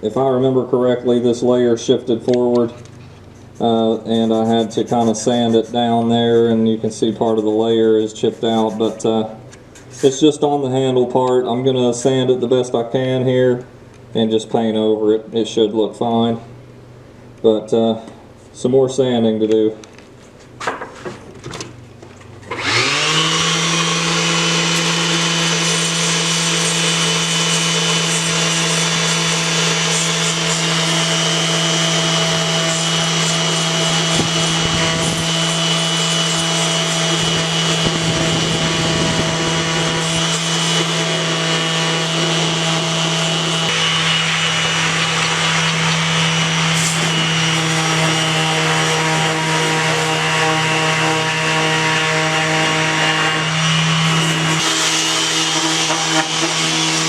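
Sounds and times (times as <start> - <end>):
electric sander running: 22.4 - 57.0
sander scraping hiss: 22.4 - 57.0.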